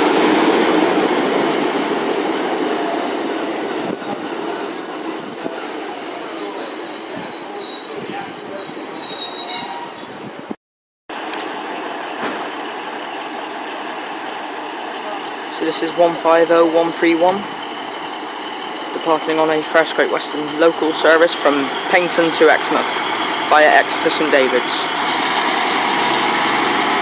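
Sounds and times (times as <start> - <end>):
train wheels squealing: 4.3 - 10.5, 17.5 - 19.2
train running rumble: 11.4 - 27.0.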